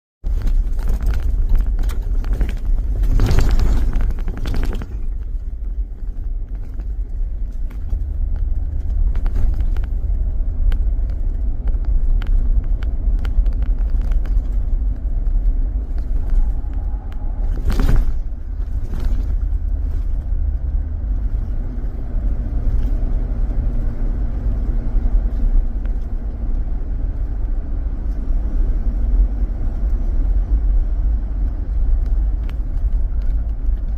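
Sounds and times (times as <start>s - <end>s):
car road and engine rumble: 0.2s - 33.9s.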